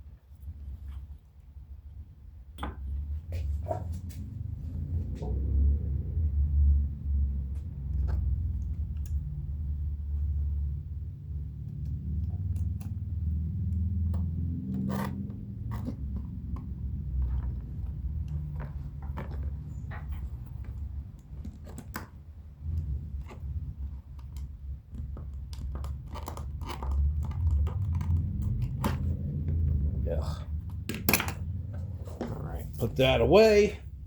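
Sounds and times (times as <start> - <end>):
knife cutting leather: 14.0 - 17.5.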